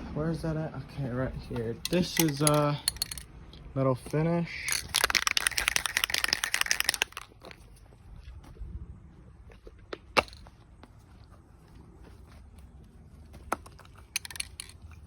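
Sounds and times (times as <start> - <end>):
spray can ball rattling: 1.8 - 3.3, 4.6 - 7.6, 14.0 - 15.0.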